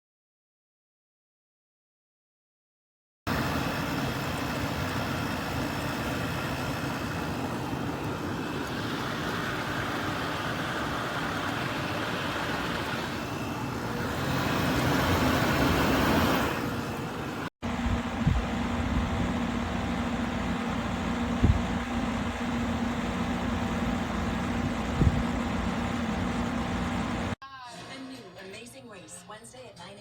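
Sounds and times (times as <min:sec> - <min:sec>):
air conditioner fan rushing: 0:03.3 - 0:27.4.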